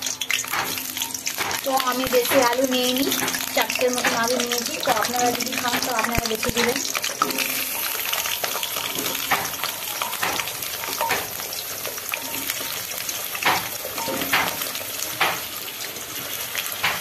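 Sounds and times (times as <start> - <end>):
potatoes sizzling in hot oil: 0.0 - 17.0.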